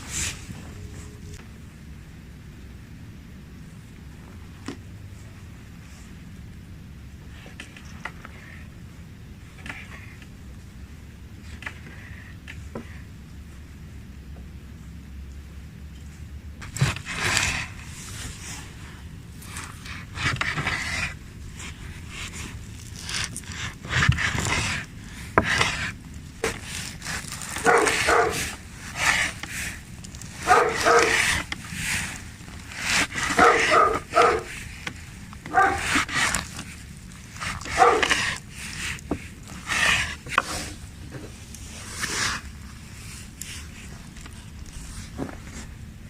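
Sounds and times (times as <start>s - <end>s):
dog barking and whining: 27.5s - 28.6s, 30.4s - 31.5s, 33.1s - 34.6s, 35.5s - 36.1s, 37.6s - 38.3s.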